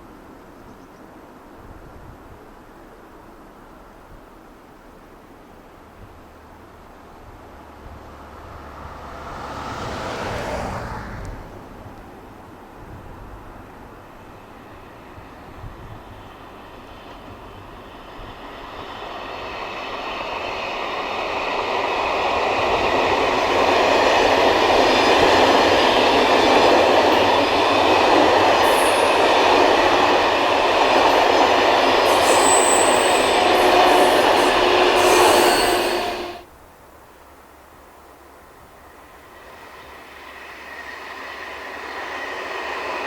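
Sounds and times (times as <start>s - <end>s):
passenger train passing: 2.8s - 43.0s
high wheel squeals: 28.4s - 29.9s, 31.9s - 36.5s.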